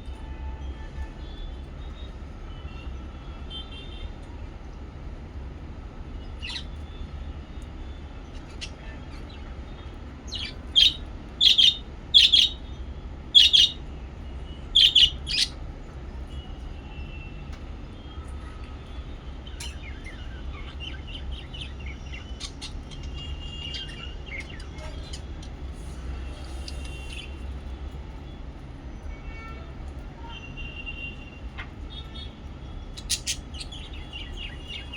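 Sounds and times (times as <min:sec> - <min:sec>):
lovebirds chirping: 0:06.3 - 0:07.0, 0:07.9 - 0:13.8, 0:14.6 - 0:15.6, 0:19.4 - 0:27.5, 0:32.1 - 0:34.9.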